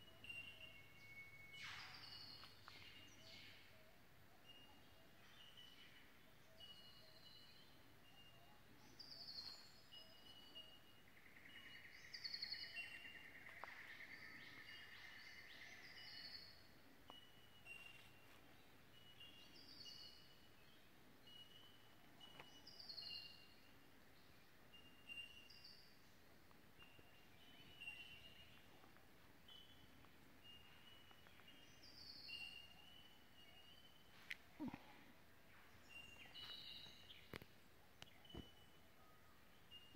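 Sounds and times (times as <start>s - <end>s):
forest birds calling: 0.0s - 39.9s.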